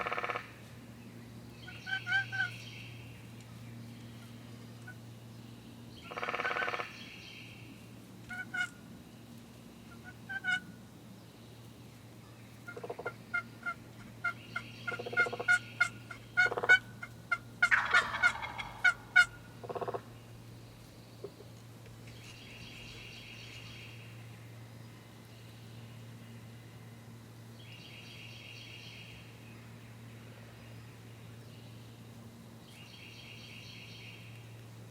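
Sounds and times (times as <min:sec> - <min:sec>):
turkey gobbling: 0:00.0 - 0:00.5, 0:01.8 - 0:02.5, 0:06.1 - 0:06.9, 0:08.3 - 0:08.8, 0:10.0 - 0:10.6, 0:12.7 - 0:20.1
short sharp turkey calls: 0:12.7 - 0:20.0.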